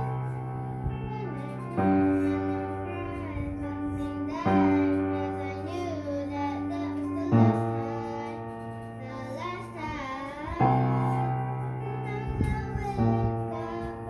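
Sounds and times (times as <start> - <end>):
piano accompaniment: 0.0 - 14.0.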